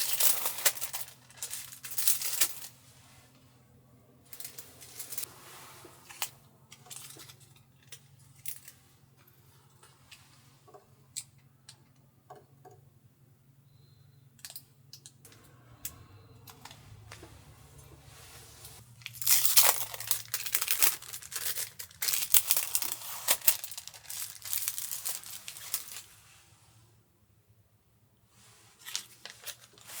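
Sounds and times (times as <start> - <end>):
faint low hum: 0.2 - 22.1
small objects clicking and tapping: 14.4 - 16.0.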